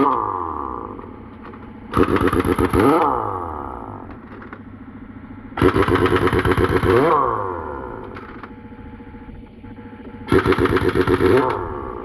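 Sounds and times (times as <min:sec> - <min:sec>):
pneumatic impact wrench hammering: 0:00.0 - 0:04.6, 0:05.6 - 0:08.6, 0:10.2 - 0:12.0.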